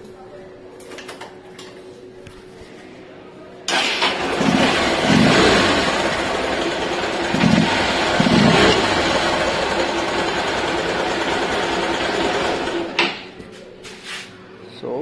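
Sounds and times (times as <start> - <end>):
motorcycle engine revving: 3.7 - 13.0.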